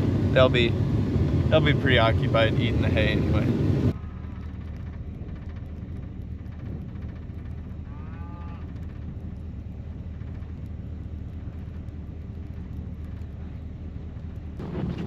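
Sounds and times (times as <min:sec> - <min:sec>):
vehicle engine running: 0:00.0 - 0:15.0
cow mooing: 0:07.9 - 0:08.7.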